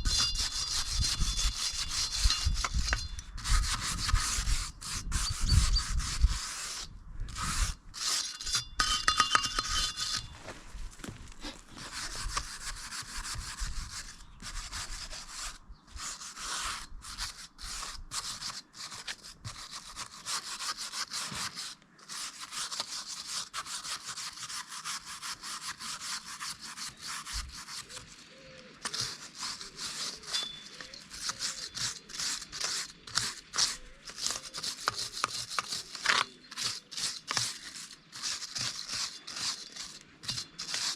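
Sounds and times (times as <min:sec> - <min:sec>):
wire brush scrubbing metal: 0:00.0 - 0:10.3, 0:28.8 - 0:40.9.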